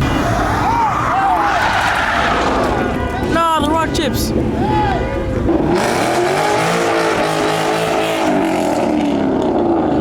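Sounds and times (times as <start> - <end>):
car engine revving: 5.4 - 10.0.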